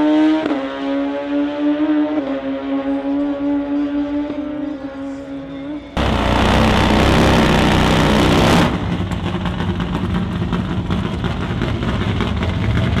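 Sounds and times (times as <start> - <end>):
motorcycle engine at full throttle: 6.0 - 12.9.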